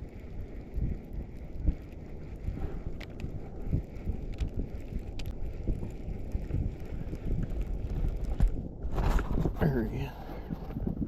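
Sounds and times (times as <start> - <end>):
wind buffeting microphone: 0.0 - 11.0
light clicks and taps: 4.2 - 9.2.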